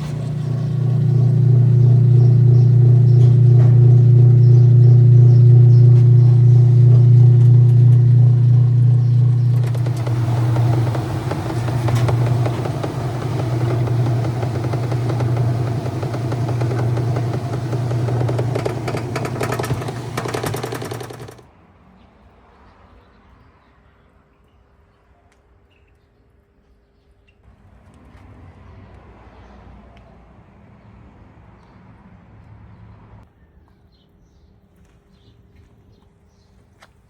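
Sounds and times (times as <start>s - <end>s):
washing machine clattering churn: 0.0s - 21.4s
washing machine motor hum: 0.0s - 21.5s.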